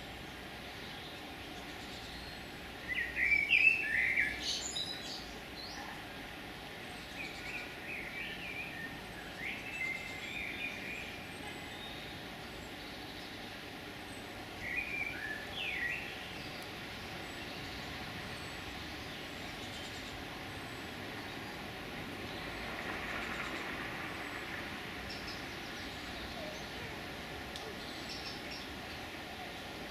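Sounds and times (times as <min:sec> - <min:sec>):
songbirds chirping alarm calls: 0:07.0 - 0:22.8, 0:23.4 - 0:29.9.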